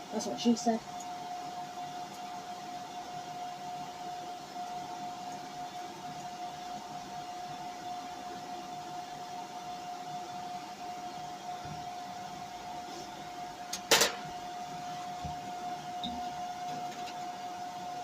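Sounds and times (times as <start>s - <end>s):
steady whine: 0.0s - 18.0s.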